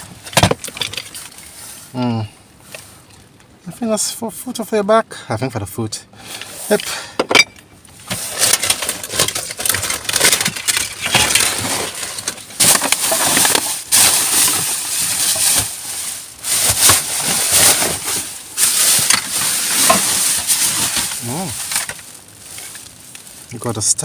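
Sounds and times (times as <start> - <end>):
plastic bags crinkling: 8.0 - 24.0.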